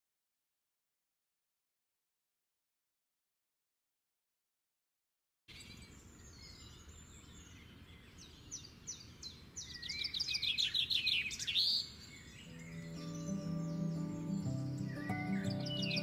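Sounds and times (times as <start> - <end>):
faint outdoor hiss: 5.5 - 16.0
songbird singing: 5.5 - 16.0
soft sustained music: 12.4 - 16.0.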